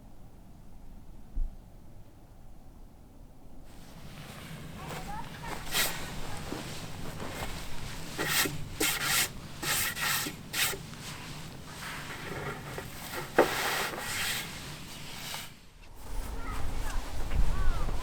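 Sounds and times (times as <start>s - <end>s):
irregular scraping strokes: 3.7s - 18.0s.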